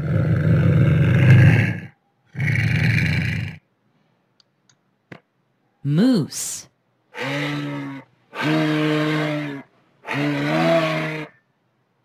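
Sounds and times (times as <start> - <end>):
lynx growling: 0.0 - 3.7, 7.1 - 11.4.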